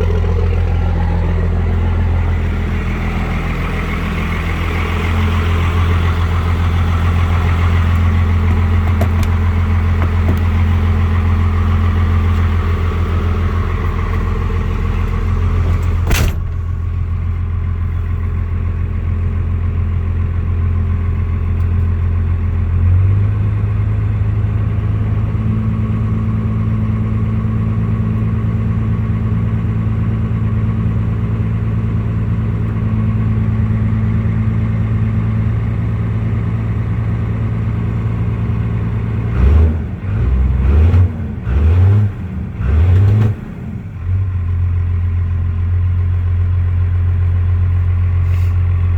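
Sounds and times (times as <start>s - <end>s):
diesel engine idling with clatter: 0.0s - 48.9s
single thump: 15.8s - 16.9s.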